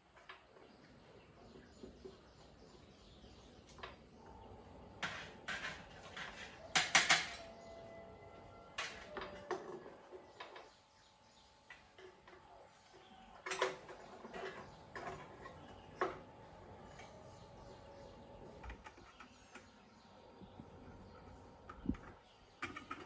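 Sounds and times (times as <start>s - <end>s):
hard objects clicking and knocking: 5.0s - 7.5s, 21.7s - 23.0s.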